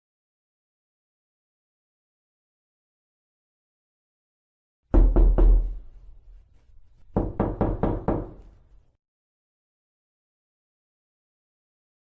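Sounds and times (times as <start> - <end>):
knocking on a door: 4.9 - 5.9, 7.1 - 8.4.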